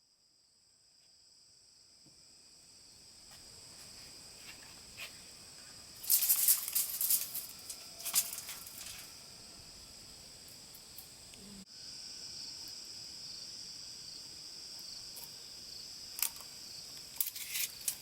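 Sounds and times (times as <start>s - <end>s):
insects chirring: 0.1s - 18.0s
crackling rustling clicks: 6.0s - 9.1s, 16.2s - 18.0s.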